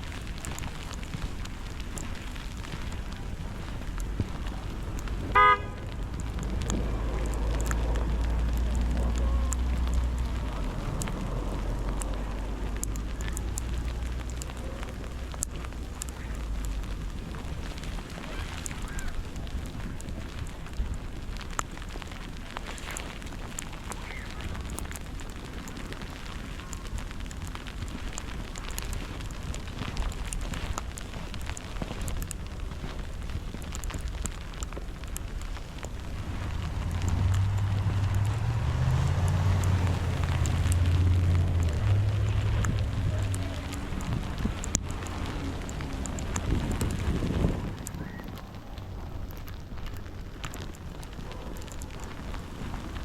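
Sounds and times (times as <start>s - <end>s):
city street noise: 0.0s - 53.0s
crackling ticks: 0.0s - 53.0s
vehicle rumble passing: 2.2s - 18.6s, 35.0s - 53.0s
car horn toot: 5.3s - 5.8s.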